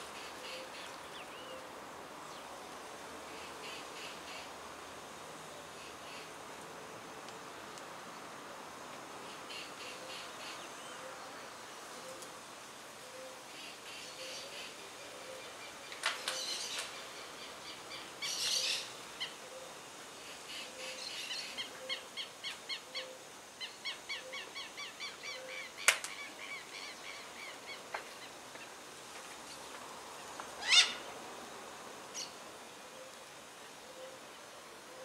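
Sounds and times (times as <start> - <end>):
birds screeching: 30.6 - 31.1.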